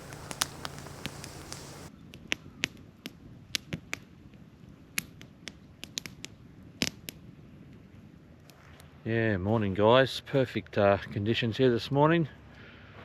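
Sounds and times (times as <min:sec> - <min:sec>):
campfire crackling: 0:00.0 - 0:01.9
steady hiss: 0:00.0 - 0:01.9.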